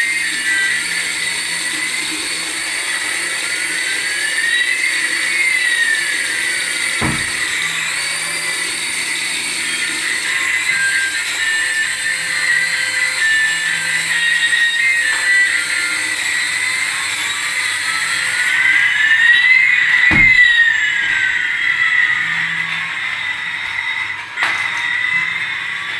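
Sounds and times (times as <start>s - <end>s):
toy electric motors whining: 0.0s - 25.9s
knock: 7.0s - 7.6s, 20.1s - 20.6s.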